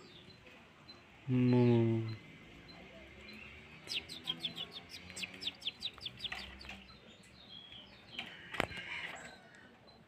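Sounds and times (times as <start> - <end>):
bird singing high chirps: 0.0 - 10.0.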